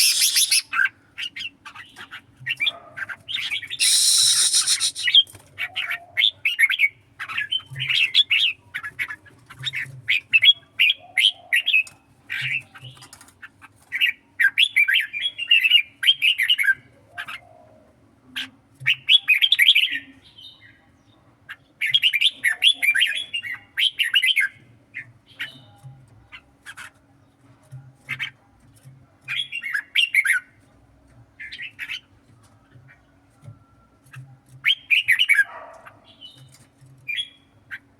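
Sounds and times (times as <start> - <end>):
bulbul chattering song: 0.0 - 1.4, 3.8 - 5.4.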